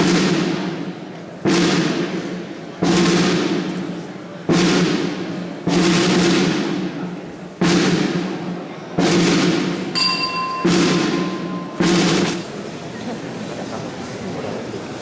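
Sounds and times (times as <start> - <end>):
heavy drum strikes: 0.0 - 12.8
faint high tone: 10.0 - 11.8.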